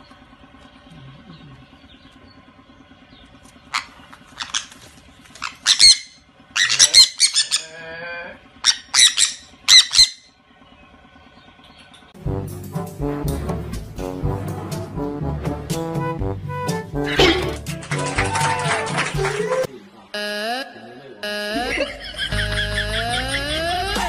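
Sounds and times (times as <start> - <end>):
parrots screeching: 3.7 - 8.0, 8.6 - 10.3
lower wavering bird call: 8.6 - 10.4.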